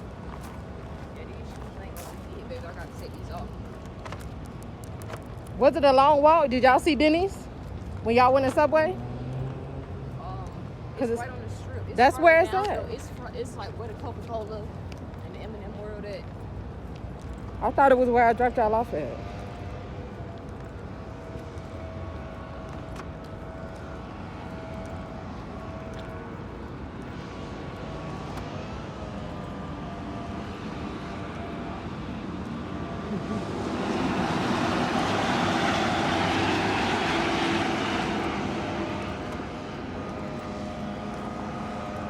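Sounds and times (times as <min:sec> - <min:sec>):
road vehicle hum: 0:00.0 - 0:42.0
vehicle rushing past: 0:08.6 - 0:12.6, 0:27.2 - 0:42.0
faint steady tones: 0:09.9 - 0:42.0.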